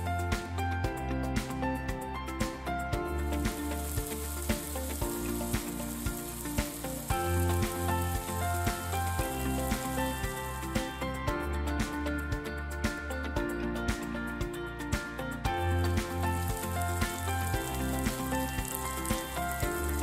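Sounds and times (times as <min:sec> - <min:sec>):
music with steady beat: 0:00.0 - 0:20.0
onion and tomato sizzling in oil: 0:03.2 - 0:11.2, 0:15.6 - 0:20.0.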